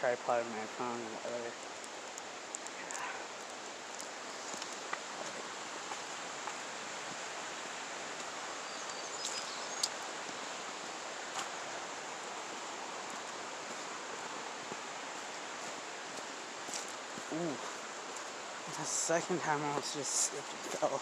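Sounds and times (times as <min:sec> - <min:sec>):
creek water flowing: 0:00.0 - 0:21.0
light clicks and taps: 0:01.7 - 0:03.0.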